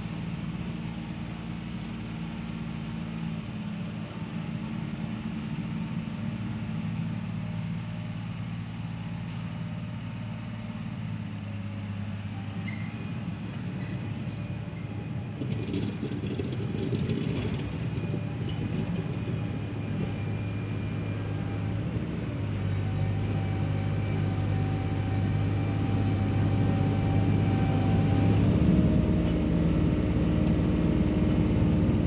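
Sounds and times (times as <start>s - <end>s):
tractor diesel engine running: 0.0s - 12.4s, 13.2s - 32.0s.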